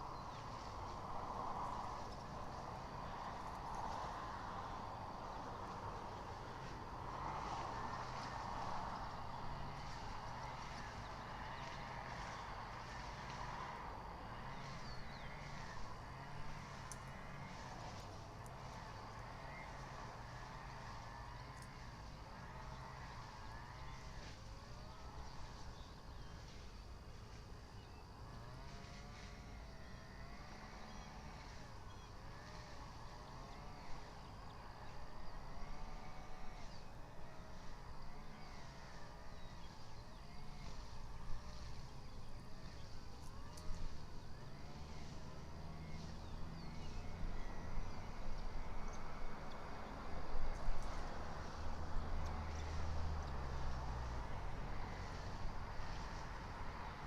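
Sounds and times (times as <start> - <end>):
distant road traffic rumbling: 0.0 - 57.0.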